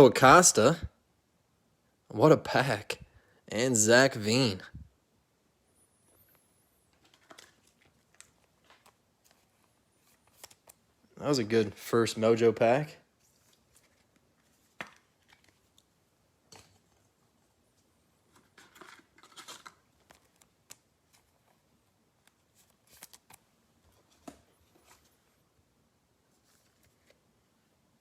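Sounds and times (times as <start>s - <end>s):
pack wrappers crinkling: 6.9s - 10.8s, 18.3s - 20.9s.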